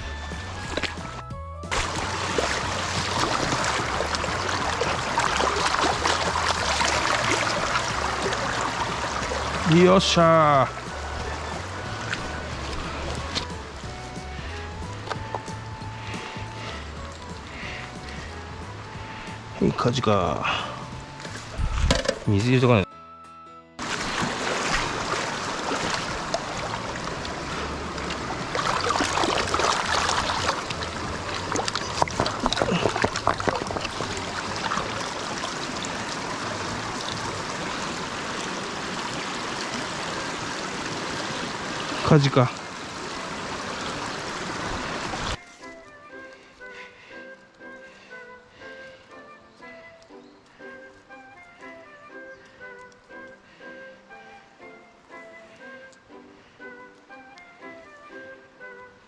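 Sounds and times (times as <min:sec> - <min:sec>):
stream running over rocks: 0:00.0 - 0:22.8, 0:23.8 - 0:45.5
small water splashes: 0:00.4 - 0:19.5, 0:23.8 - 0:45.4.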